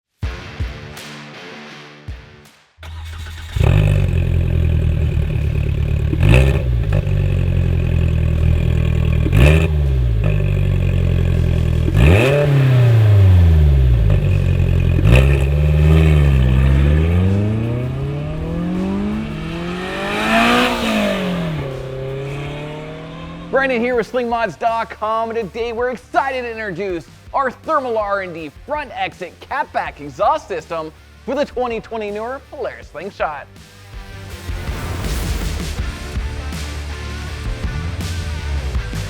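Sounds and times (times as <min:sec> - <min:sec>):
car engine revving: 0:02.8 - 0:25.5.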